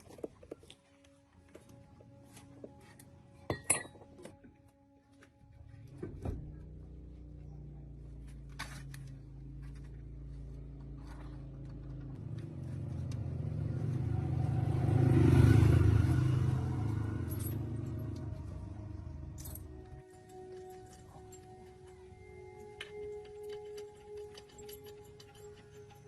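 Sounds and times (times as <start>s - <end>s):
tractor engine running: 5.9s - 26.0s.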